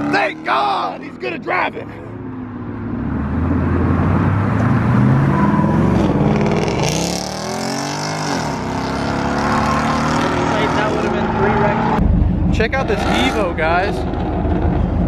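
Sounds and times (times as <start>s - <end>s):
car engine revving hard: 3.5s - 12.0s, 12.8s - 15.0s.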